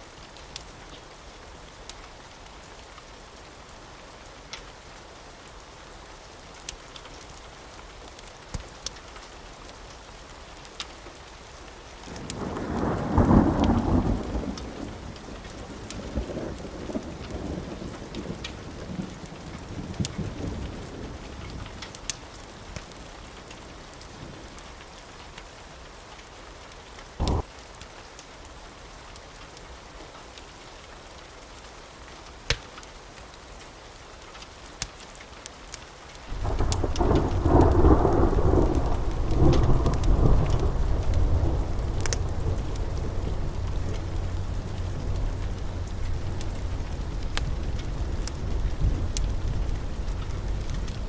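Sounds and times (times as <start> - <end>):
steady rain falling: 0.0 - 51.0
thunderclap rumbling: 12.1 - 21.8, 27.2 - 27.5, 36.3 - 51.0.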